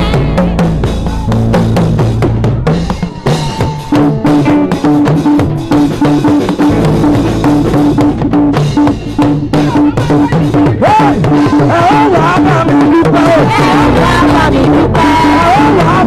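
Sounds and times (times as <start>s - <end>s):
keyboard figure: 0.0s - 10.7s
band playing gospel groove: 0.0s - 16.0s
drum kit: 0.0s - 16.0s.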